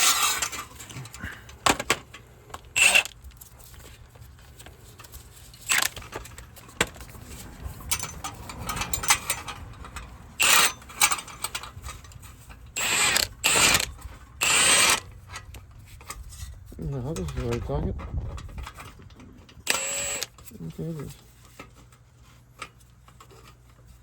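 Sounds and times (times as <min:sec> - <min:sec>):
impact wrench bursts: 0:00.0 - 0:00.7, 0:02.7 - 0:03.2, 0:05.7 - 0:06.0, 0:10.4 - 0:11.6, 0:12.8 - 0:15.1, 0:19.6 - 0:20.4.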